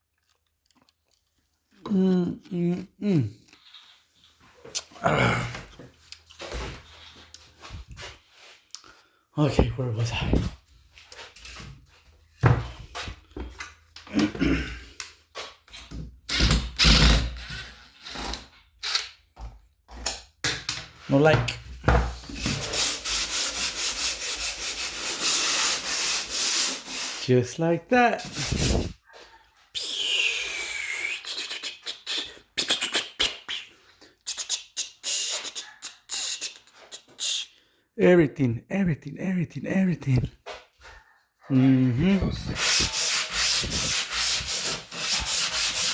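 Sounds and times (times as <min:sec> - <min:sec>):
hand sanding rubbing and scraping: 0:22.3 - 0:27.4, 0:28.2 - 0:29.0, 0:42.0 - 0:45.9.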